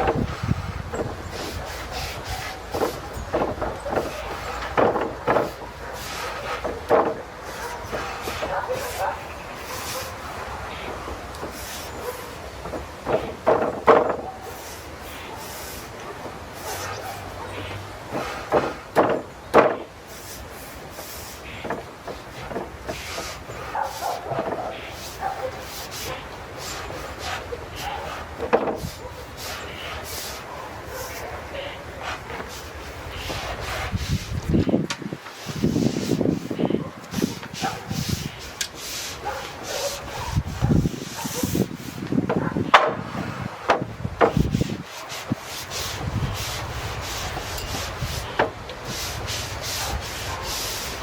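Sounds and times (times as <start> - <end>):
brush rubbing on wood: 0.0 - 51.0
wooden knocks and taps: 2.7 - 5.6, 6.6 - 7.3, 12.6 - 14.3, 18.1 - 19.9, 21.6 - 23.3, 28.4 - 28.9, 42.0 - 43.0, 43.7 - 44.5
sharp knocks: 18.1 - 19.9, 43.7 - 44.5.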